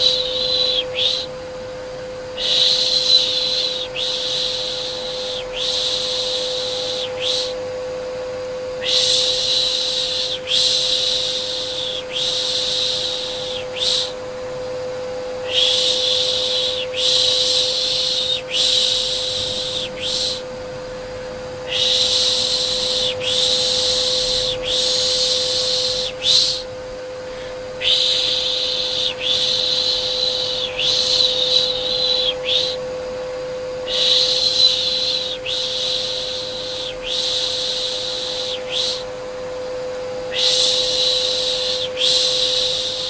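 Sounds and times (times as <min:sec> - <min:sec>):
vacuum cleaner hum: 0:00.0 - 0:43.0
person shushing: 0:08.8 - 0:14.2, 0:15.4 - 0:20.5, 0:21.6 - 0:32.8.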